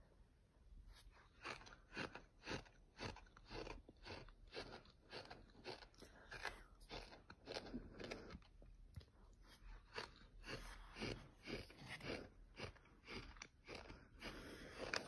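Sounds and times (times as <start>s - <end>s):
person chewing gritty sand: 1.0s - 15.0s.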